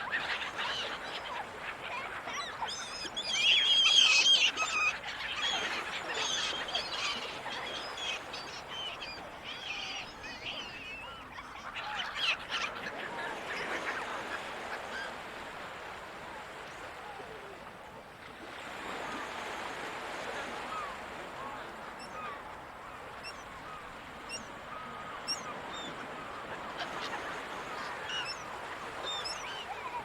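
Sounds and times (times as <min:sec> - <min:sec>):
seagulls calling: 0:00.0 - 0:17.6, 0:20.5 - 0:30.0
ocean surf: 0:12.1 - 0:30.0.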